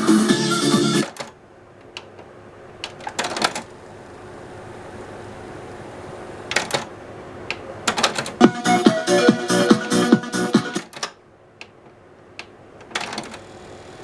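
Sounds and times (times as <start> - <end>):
music from car stereo: 0.0 - 1.1, 8.4 - 10.9.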